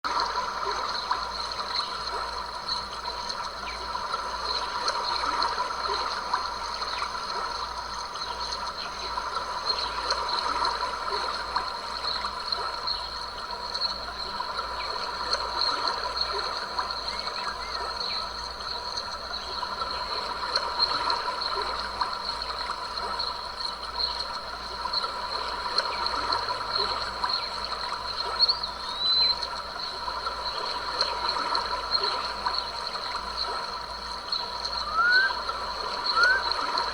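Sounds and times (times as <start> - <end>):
stream babbling: 24.4 - 36.9.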